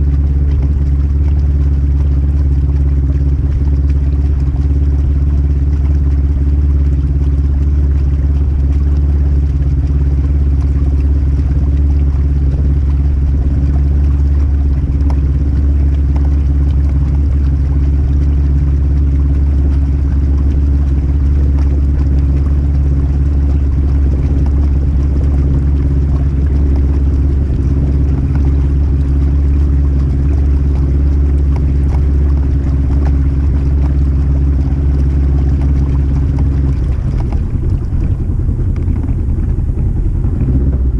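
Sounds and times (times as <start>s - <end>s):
side-by-side engine running: 0.0s - 40.9s.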